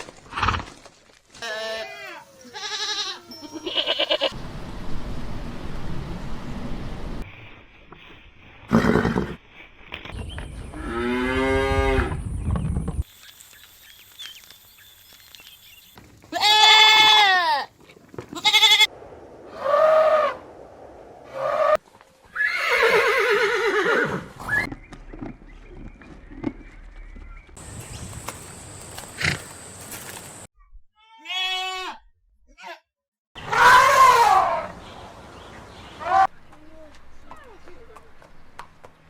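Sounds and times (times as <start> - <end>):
farm animal calls: 1.4 - 4.4.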